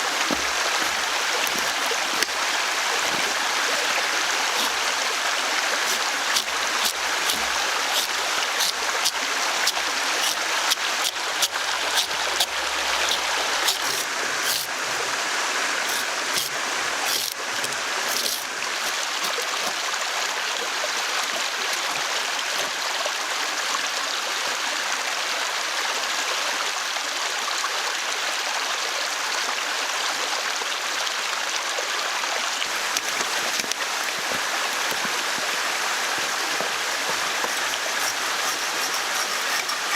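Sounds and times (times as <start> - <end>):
running water rushing: 0.0 - 24.6, 32.4 - 39.9
sharp clicks and knocks: 33.0 - 39.9.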